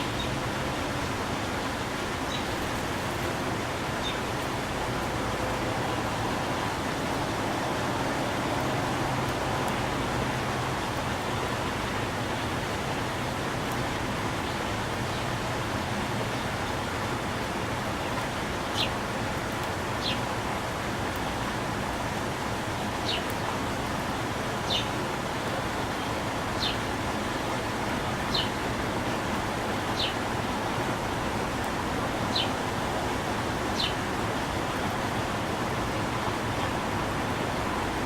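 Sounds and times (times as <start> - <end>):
steady rushing background noise: 0.0 - 14.8
bird chirping: 33.8 - 34.0.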